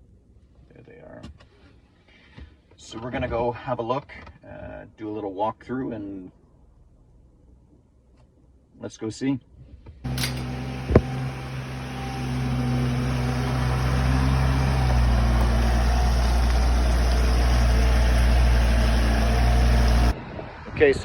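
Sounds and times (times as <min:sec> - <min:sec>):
vehicle engine running: 0:10.1 - 0:20.2.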